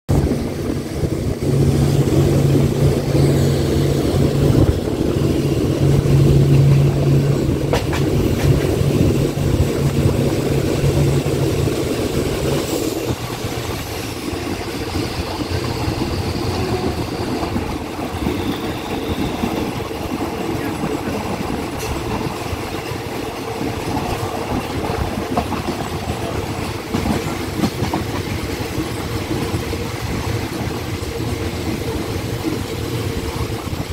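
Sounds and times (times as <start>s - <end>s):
train wheels rumbling on rails: 0.1s - 33.9s.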